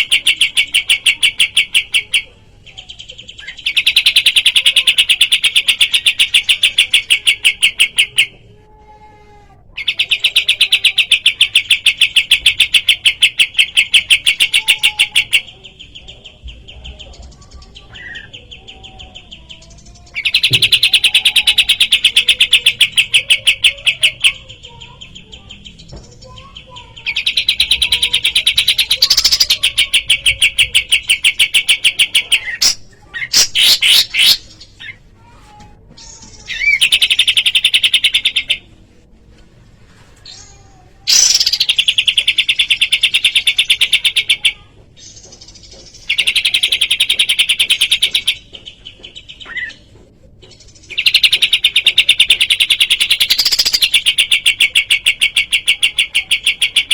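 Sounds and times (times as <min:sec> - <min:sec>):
songbird trilling: 0:41.1 - 0:44.5.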